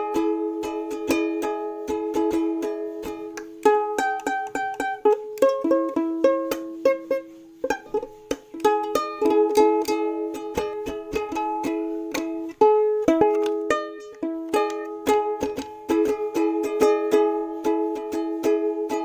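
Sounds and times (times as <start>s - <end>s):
plucked-string tune: 0.0s - 19.0s.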